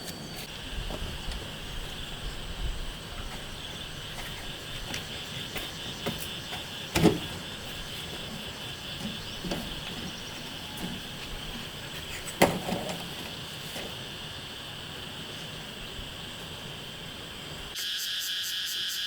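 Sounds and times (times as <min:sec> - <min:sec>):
insects chirring: 0:00.0 - 0:19.0
sharp knocks: 0:04.1 - 0:13.9.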